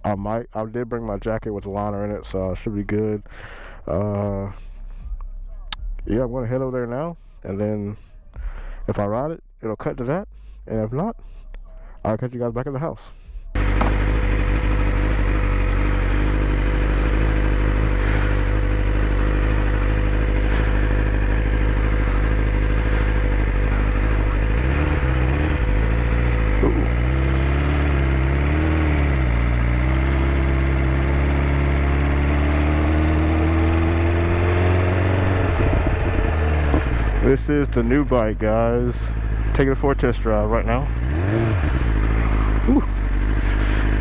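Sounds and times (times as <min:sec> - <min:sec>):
motorcycle engine revving: 0:13.1 - 0:44.0.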